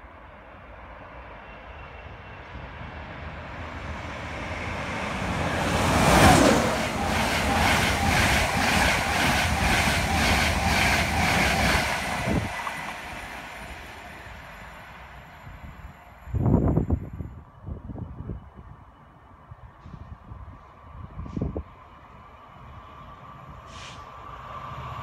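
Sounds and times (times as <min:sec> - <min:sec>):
passenger train passing at speed: 0:00.0 - 0:25.0
train wheel beats: 0:05.4 - 0:13.9.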